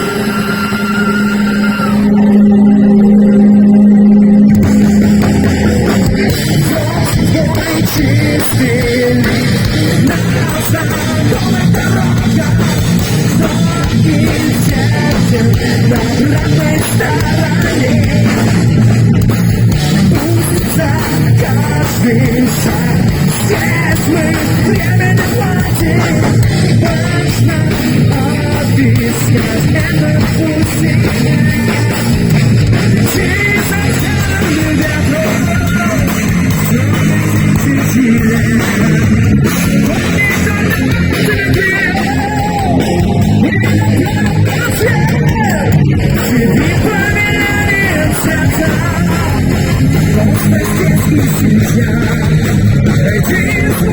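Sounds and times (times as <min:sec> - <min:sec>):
distorted electric guitar: 0:00.0 - 0:53.9
heavy metal band playing: 0:00.0 - 0:53.9.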